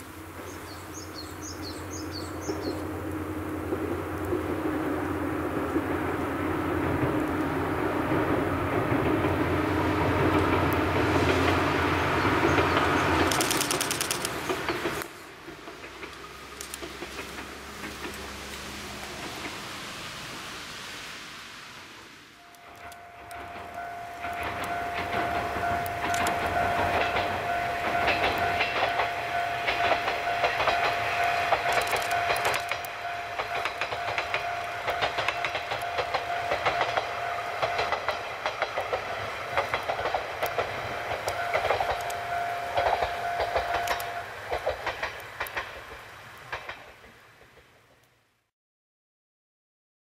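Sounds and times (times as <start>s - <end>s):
wheels clacking over rail joints: 0.0s - 20.4s, 22.4s - 48.2s
diesel train engine rumble: 0.0s - 48.4s
steady whining tone: 22.4s - 44.7s.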